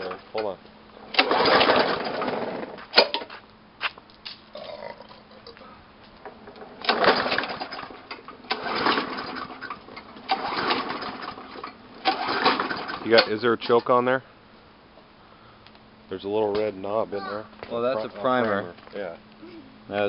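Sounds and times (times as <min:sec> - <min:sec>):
lawnmower engine turning over: 0:00.0 - 0:03.4, 0:06.1 - 0:14.1
recoil starter cord yanks: 0:01.1 - 0:03.3, 0:06.2 - 0:14.0.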